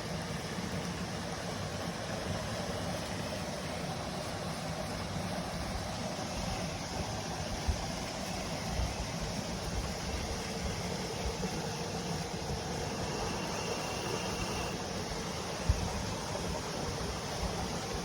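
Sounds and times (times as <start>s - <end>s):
stream rushing: 0.0s - 18.0s.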